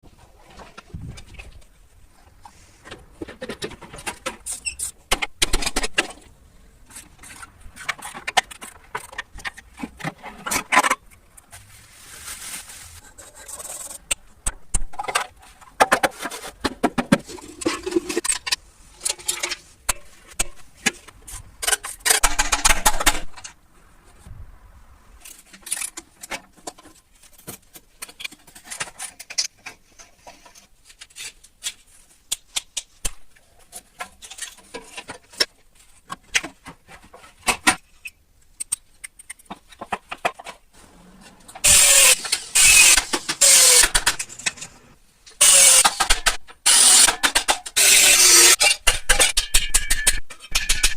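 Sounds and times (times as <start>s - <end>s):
clicking and knocking on parts: 41.5s - 50.9s.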